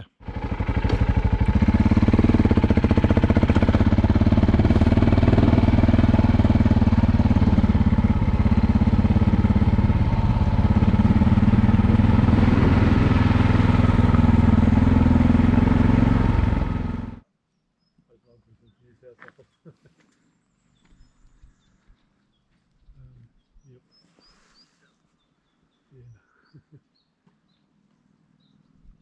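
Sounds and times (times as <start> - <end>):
motorcycle engine idling: 0.1 - 17.2.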